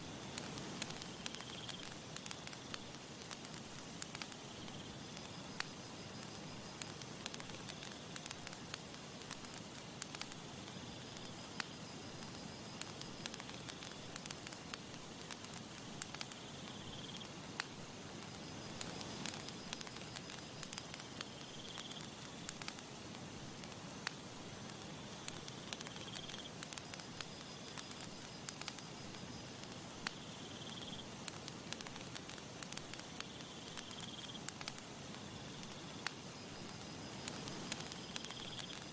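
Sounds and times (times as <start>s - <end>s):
campfire crackling and popping: 0.0s - 38.9s
soft hiss: 0.0s - 38.9s.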